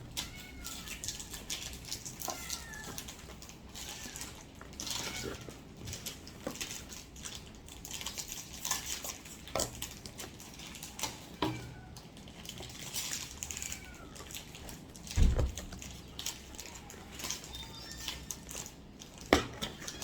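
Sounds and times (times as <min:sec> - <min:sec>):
heavy thump: 0:15.2 - 0:15.6.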